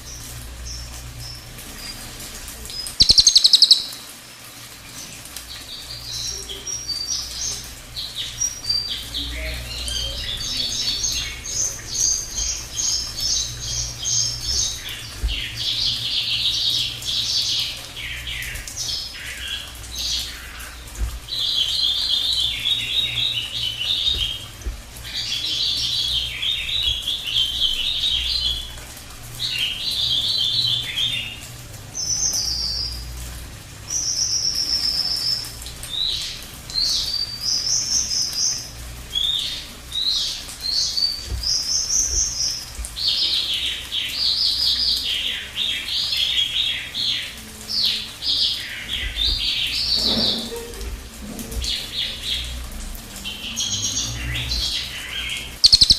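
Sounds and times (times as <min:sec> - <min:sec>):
high clipped bird notes: 0:02.9 - 0:04.0, 0:55.6 - 0:55.9
songbird trilling: 0:03.0 - 0:04.0, 0:55.6 - 0:55.9.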